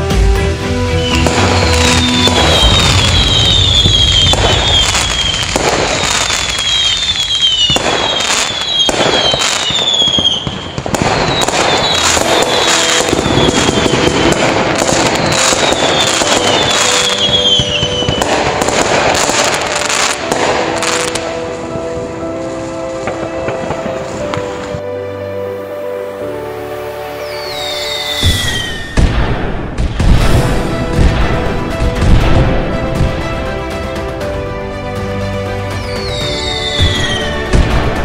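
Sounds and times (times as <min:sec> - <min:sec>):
high falling whistles: 0:01.0 - 0:18.2, 0:26.6 - 0:29.1, 0:35.8 - 0:37.4
fireworks shells bursting: 0:01.0 - 0:21.4, 0:27.5 - 0:33.1
fireworks crackling: 0:01.0 - 0:25.0, 0:25.6 - 0:38.0.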